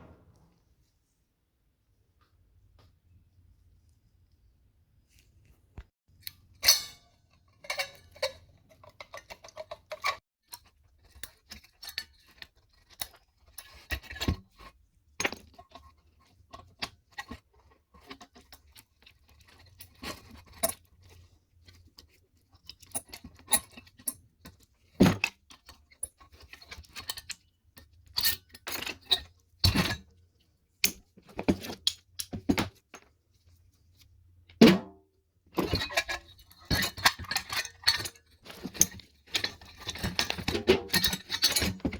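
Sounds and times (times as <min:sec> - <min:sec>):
hand tools clinking on sheet metal: 0:06.6 - 0:08.3.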